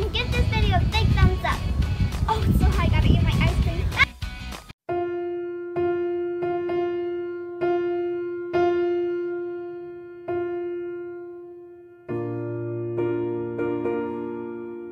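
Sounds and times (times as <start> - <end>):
slow electric piano music: 4.9 - 14.9.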